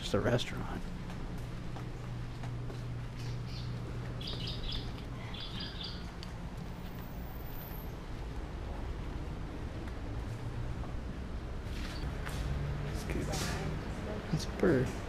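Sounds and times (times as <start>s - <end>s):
steady low hum: 0.0s - 15.0s
small bird chirping: 3.2s - 6.2s.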